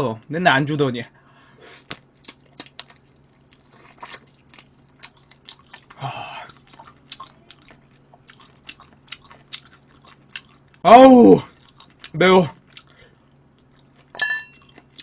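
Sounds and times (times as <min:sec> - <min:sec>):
person chewing and biting: 0:01.8 - 0:10.8, 0:11.5 - 0:15.0
wet mouth smacks and clicks: 0:01.9 - 0:03.0.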